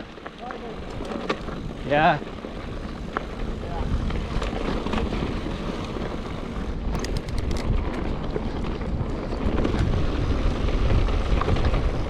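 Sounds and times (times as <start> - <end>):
mountain bike rolling on dirt trail: 0.0 - 12.0
wind buffeting microphone: 0.0 - 12.0
clicks and rattles: 6.9 - 7.9.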